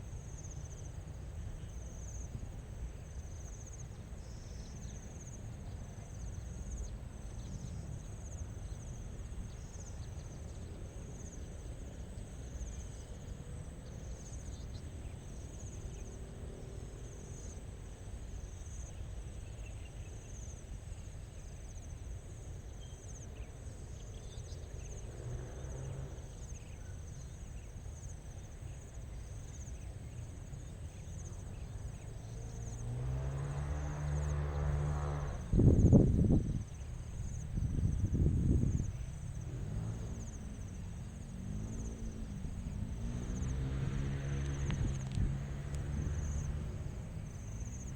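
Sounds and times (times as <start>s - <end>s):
insects trilling: 0.1s - 47.9s.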